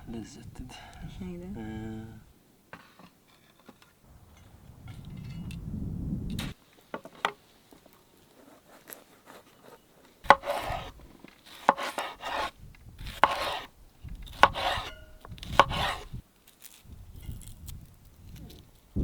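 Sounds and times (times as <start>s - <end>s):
knife cutting on cutting board: 8.4s - 13.7s, 14.3s - 16.1s.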